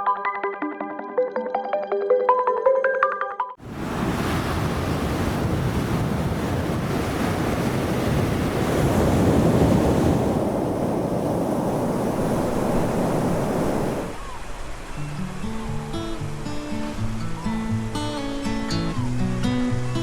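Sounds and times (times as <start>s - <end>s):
wind rumbling on microphone: 3.6s - 15.0s
surf washing onto beach: 3.6s - 17.6s.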